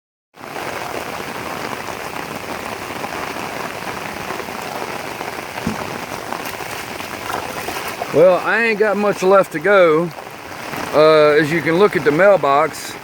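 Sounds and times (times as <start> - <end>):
rain falling on water: 0.4 - 13.0.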